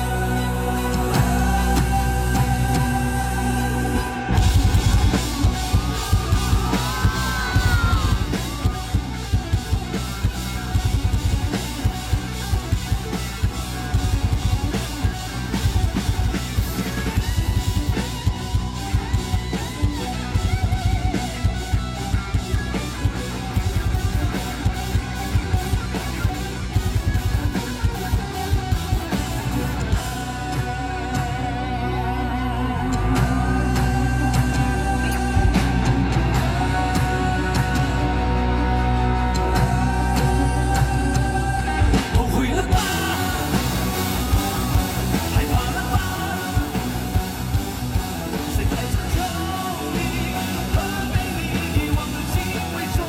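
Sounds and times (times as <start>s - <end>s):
electric guitar: 0.0s - 53.0s
rock band playing: 0.0s - 53.0s.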